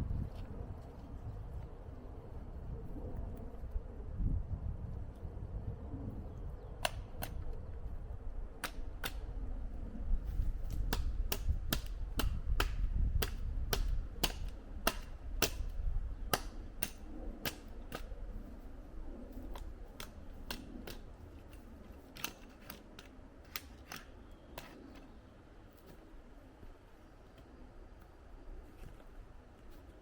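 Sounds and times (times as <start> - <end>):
low steady rumble: 0.0 - 23.5.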